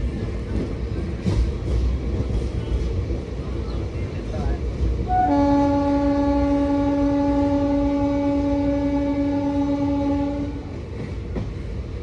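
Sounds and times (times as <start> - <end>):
low rumble of train: 0.0 - 12.0
train horn blast: 5.1 - 10.7.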